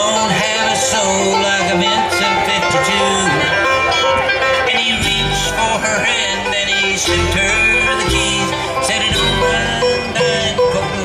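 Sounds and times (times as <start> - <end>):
banjo: 0.0 - 11.0
bluegrass band playing: 0.0 - 11.0
guitar: 0.0 - 11.0
steady bass pulse: 5.0 - 10.7.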